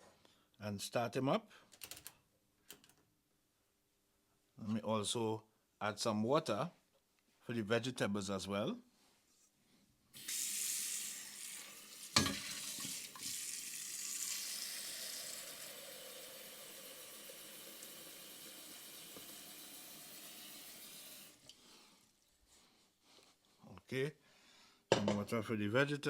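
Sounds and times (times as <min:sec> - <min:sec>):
tap water running into a pot: 0:10.2 - 0:22.3
pot knocking: 0:12.2 - 0:12.6, 0:24.9 - 0:25.2.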